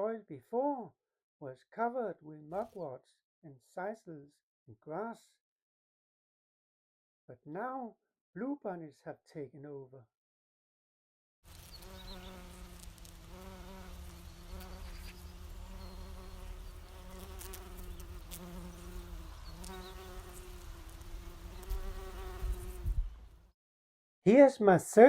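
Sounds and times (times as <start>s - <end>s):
bumblebee buzzing: 11.5s - 23.5s.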